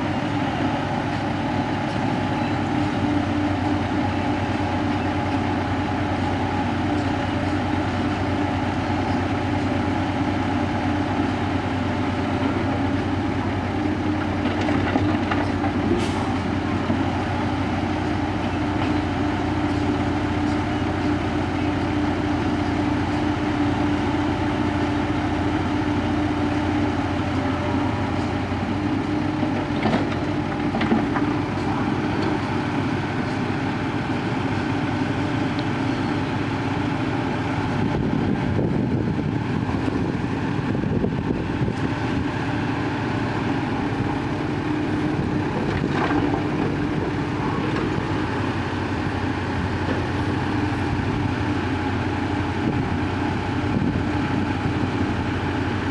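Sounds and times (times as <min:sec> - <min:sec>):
heavy diesel machinery running: 0:00.0 - 0:55.9.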